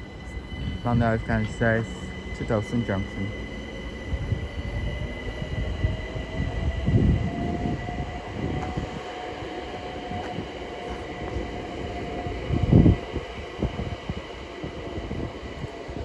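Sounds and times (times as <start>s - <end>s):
electric train motor whine: 0.0s - 16.0s.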